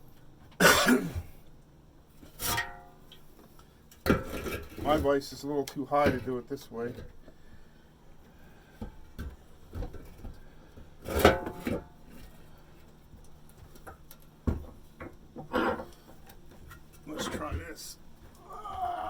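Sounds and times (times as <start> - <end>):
metal exhaust pipe clanking: 2.4 - 3.0.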